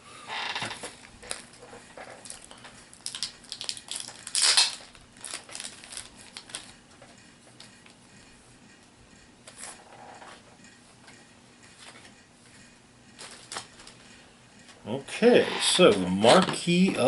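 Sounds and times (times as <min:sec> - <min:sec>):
plastic packaging crinkling: 0:01.0 - 0:06.8, 0:13.2 - 0:14.0
small plastic pieces clattering: 0:02.2 - 0:06.7.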